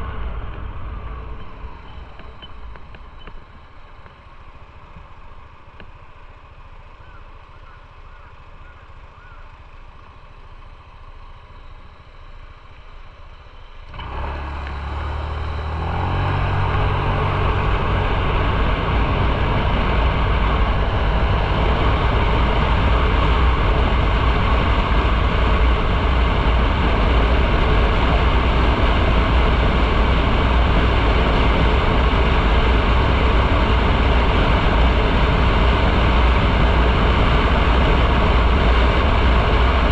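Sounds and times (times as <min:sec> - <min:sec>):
motorcycle engine: 0:00.0 - 0:39.9
rushing wind noise: 0:14.0 - 0:39.9.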